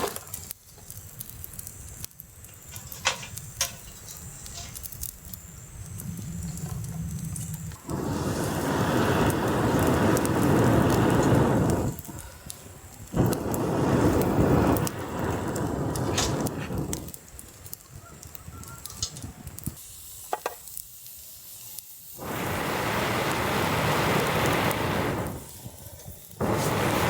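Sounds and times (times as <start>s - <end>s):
fire crackling faintly: 0.0s - 27.0s
blowing through a pipe: 6.0s - 17.2s, 22.2s - 27.0s.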